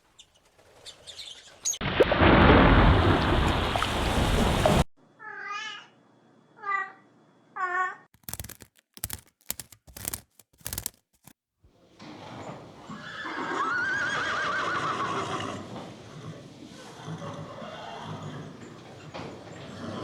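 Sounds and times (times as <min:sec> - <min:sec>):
horse whinnying: 0:12.9 - 0:18.6.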